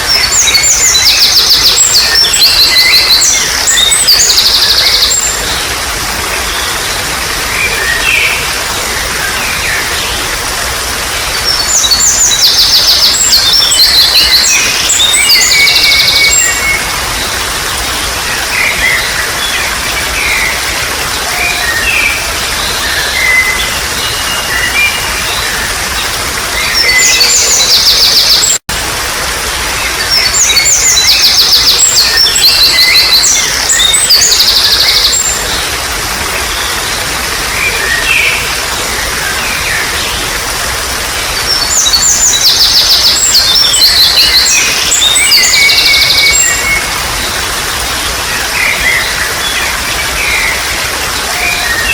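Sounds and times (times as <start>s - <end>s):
birds singing: 0.0s - 28.6s, 29.2s - 51.9s
stream water trickling: 0.0s - 51.9s.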